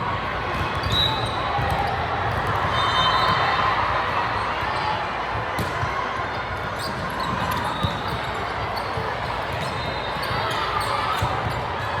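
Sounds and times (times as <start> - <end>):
basketball bouncing on court: 0.5 - 6.0, 6.8 - 11.8
shoe squeaks: 6.8 - 11.6.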